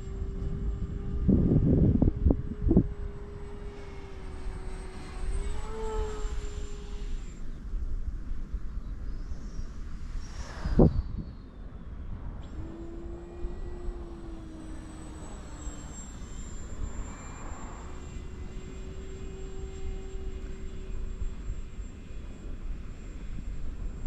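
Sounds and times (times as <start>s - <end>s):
wind noise rumble: 0.0s - 4.0s, 9.6s - 14.5s
model plane motor whining: 0.0s - 24.0s.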